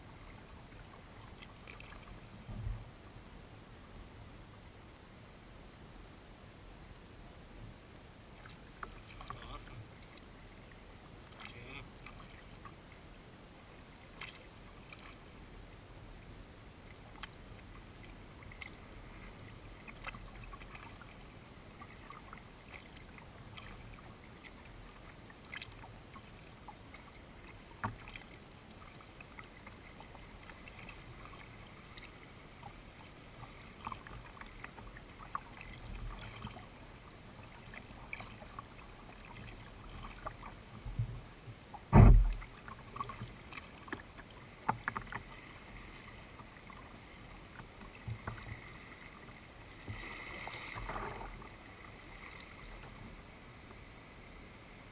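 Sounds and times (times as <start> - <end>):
paddle splashing in water: 14.1 - 15.2, 18.0 - 36.7, 37.3 - 53.0
small ticks and knocks: 27.8 - 28.3, 39.3 - 45.3, 47.5 - 48.6.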